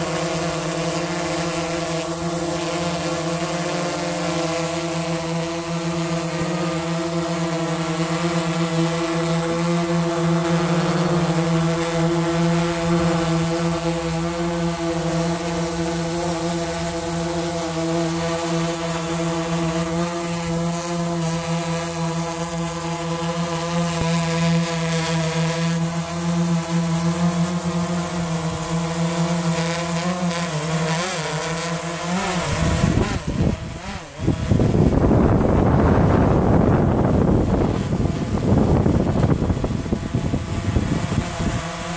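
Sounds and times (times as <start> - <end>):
drone propellers humming: 0.0 - 41.9.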